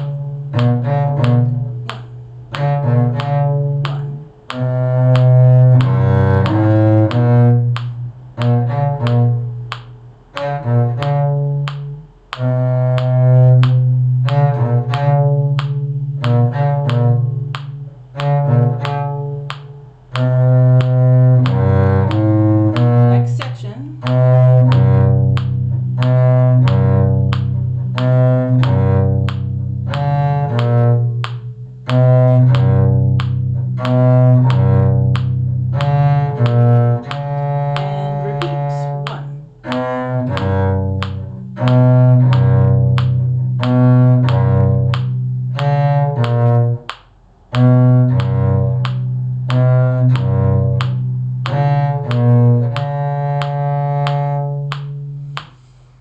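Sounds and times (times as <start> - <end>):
bowed strings playing a tune: 0.0 - 55.7
low cello bass line: 0.0 - 56.0.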